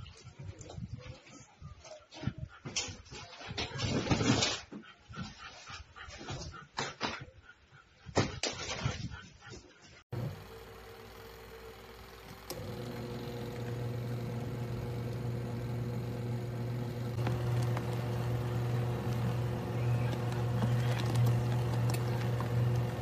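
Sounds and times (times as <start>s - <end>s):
washing machine motor hum: 10.1s - 23.0s.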